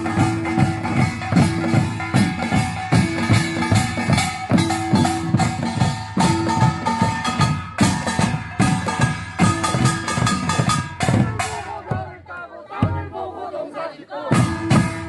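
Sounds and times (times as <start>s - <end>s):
small hand gongs: 0.0s - 11.1s
hourglass drum: 0.0s - 11.6s
barrel drum: 0.0s - 12.2s, 14.3s - 15.0s
percussion ensemble playing fast rhythm: 0.0s - 13.5s, 14.2s - 15.0s.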